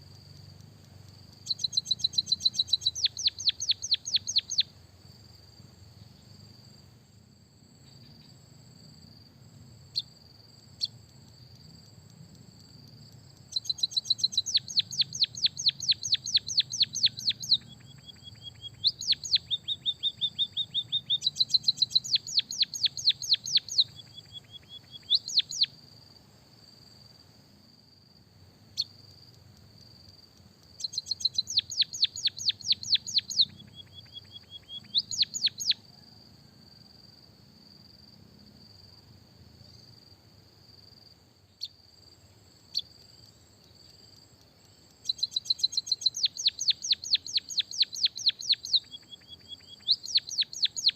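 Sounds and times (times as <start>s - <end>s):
bird chirps: 0.1s - 4.7s, 9.9s - 10.2s, 10.8s - 11.7s, 13.3s - 25.8s, 28.7s - 29.0s, 30.6s - 36.1s, 41.5s - 41.8s, 42.7s - 50.9s
fast downward-sweeping bird chirps: 1.4s - 4.7s, 13.5s - 25.7s, 30.8s - 35.8s, 45.0s - 50.9s.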